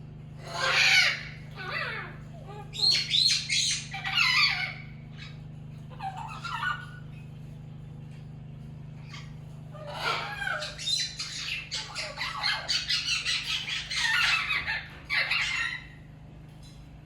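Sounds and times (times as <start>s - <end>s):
steady low hum: 0.0s - 17.0s
parrot squawking: 0.4s - 7.2s, 9.0s - 16.1s.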